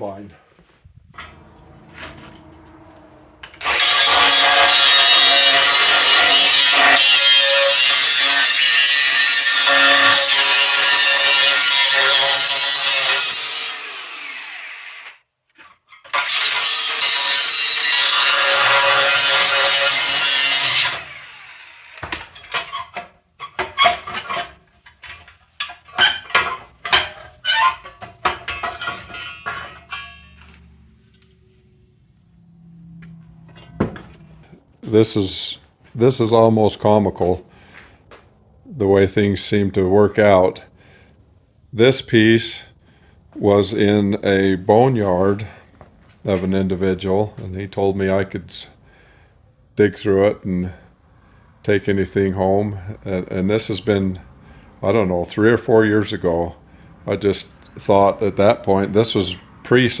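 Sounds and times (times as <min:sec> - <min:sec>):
sharp knocks and clanks: 0:01.1 - 0:06.2, 0:22.0 - 0:30.6, 0:33.0 - 0:34.5
power tool cutting metal: 0:01.2 - 0:15.2, 0:16.1 - 0:22.9.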